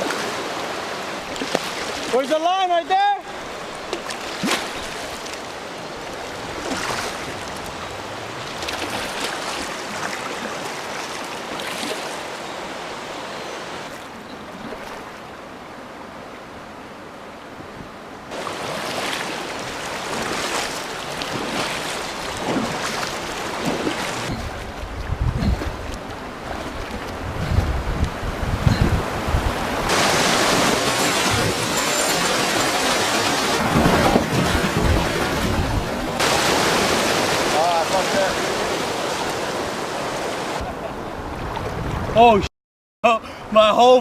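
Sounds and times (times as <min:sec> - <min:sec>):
river water rushing and splashing: 0:00.0 - 0:42.4
wind rumbling on microphone: 0:20.0 - 0:37.6, 0:38.6 - 0:42.4.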